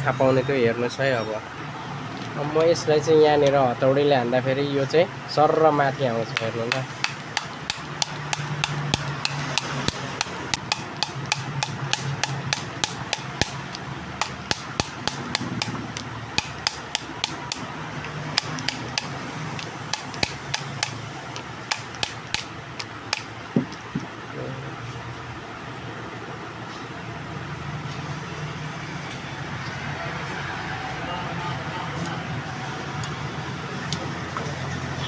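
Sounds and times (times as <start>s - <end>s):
hammer tapping on metal motor: 6.3s - 23.3s.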